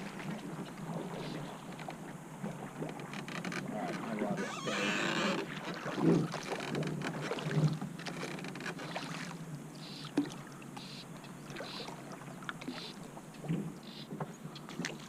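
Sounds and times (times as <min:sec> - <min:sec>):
river water lapping and splashing: 0:00.0 - 0:15.0
small knocks and clicks from boat: 0:00.0 - 0:15.0.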